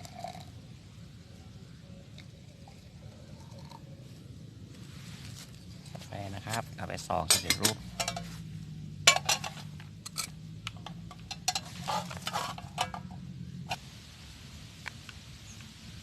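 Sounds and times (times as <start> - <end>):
low steady hum: 0.0 - 16.0
spoon clinking metal cookware: 7.2 - 8.3, 9.1 - 11.8.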